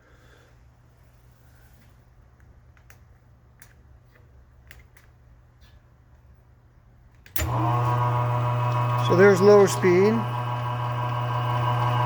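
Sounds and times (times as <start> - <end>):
faint clicks and taps: 2.4 - 5.2.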